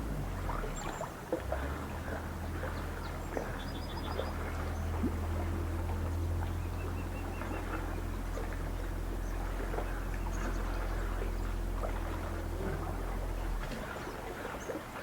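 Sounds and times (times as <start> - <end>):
steady low hum: 0.0 - 15.0
small birds chirping: 1.9 - 5.5.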